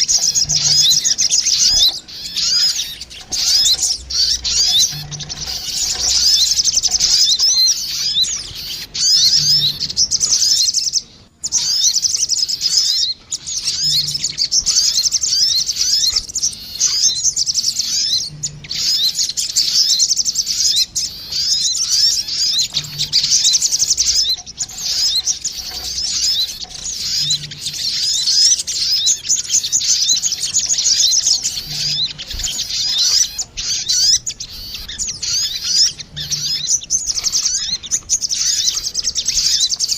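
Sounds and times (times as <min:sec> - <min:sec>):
sunbirds chirping and trilling: 0:00.0 - 0:39.9.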